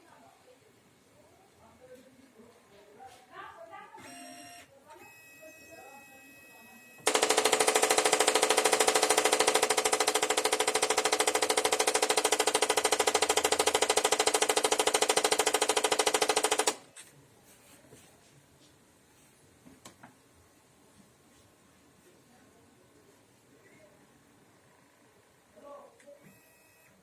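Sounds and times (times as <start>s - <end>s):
printer mechanical rattle: 7.1s - 16.9s.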